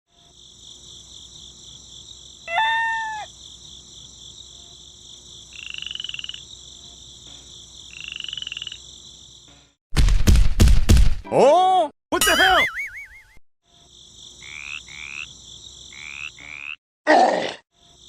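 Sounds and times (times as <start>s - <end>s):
high insect buzz: 0.1s - 9.8s, 13.6s - 16.8s, 17.7s - 18.0s.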